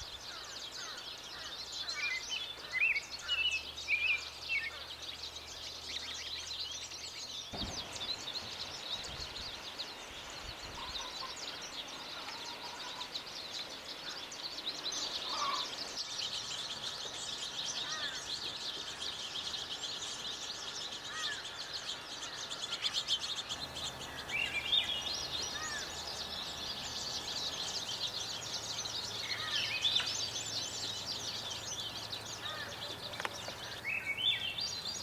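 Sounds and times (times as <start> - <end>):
birds twittering chatter: 0.0 - 8.1, 15.0 - 35.0
rising bird call: 23.5 - 35.0.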